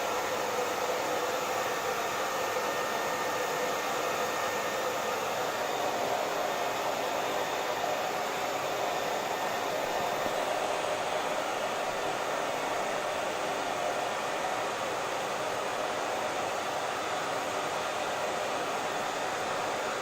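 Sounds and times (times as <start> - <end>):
hair dryer running: 0.0 - 20.0.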